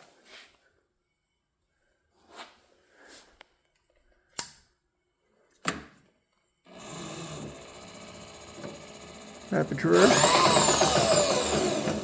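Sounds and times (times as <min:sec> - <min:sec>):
power feed motor running: 0:06.7 - 0:12.0.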